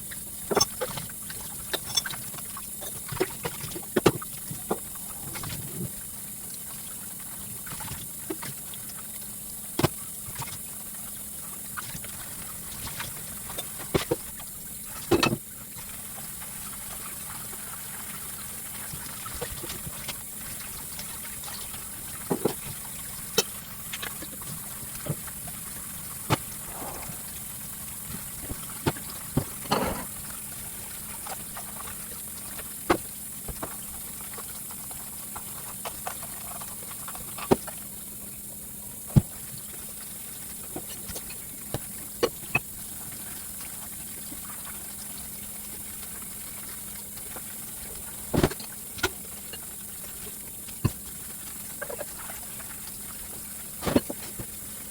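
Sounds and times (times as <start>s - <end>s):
steady hum: 26.2s - 30.4s.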